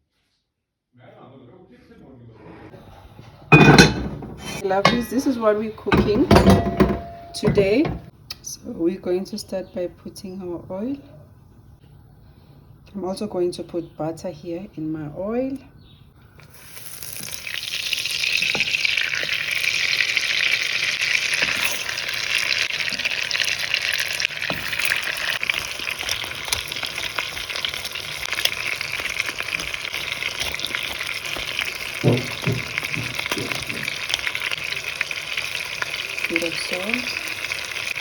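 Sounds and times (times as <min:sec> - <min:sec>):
meat sizzling in hot oil: 0:16.4 - 0:38.0.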